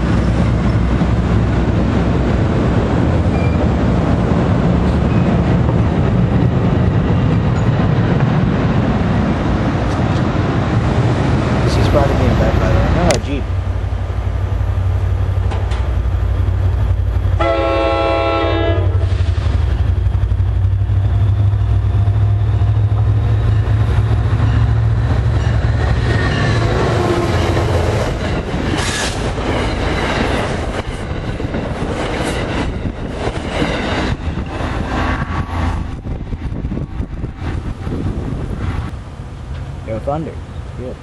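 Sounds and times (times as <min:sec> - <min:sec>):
locomotive drone: 0:00.0 - 0:41.0
train cars rumbling and clattering: 0:00.0 - 0:41.0
train horn blast: 0:17.4 - 0:19.2.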